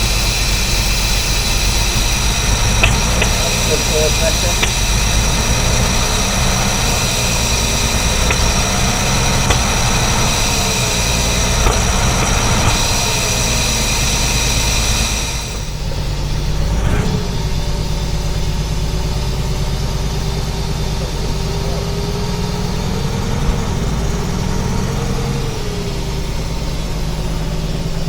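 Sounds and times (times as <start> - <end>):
high hiss or whine: 0.0 - 21.4
steady hum: 0.0 - 21.4
engine idling: 0.0 - 28.0.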